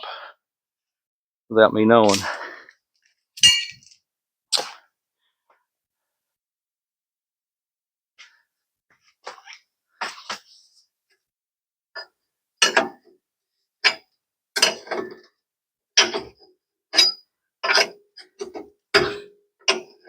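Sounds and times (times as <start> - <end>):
metal hand tools clicking and clanking: 3.4 - 3.9, 17.0 - 19.9.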